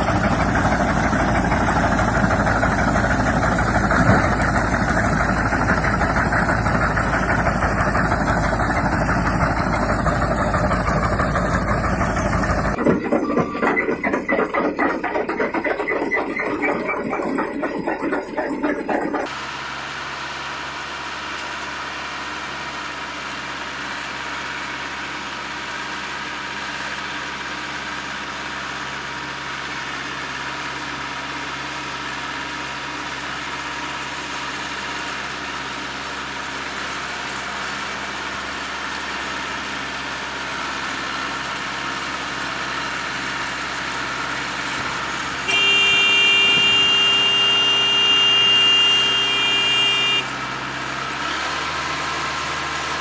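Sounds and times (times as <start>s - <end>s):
baling machine engine running: 0.0s - 19.4s, 35.6s - 53.0s
loud horn-like tone: 45.5s - 50.3s.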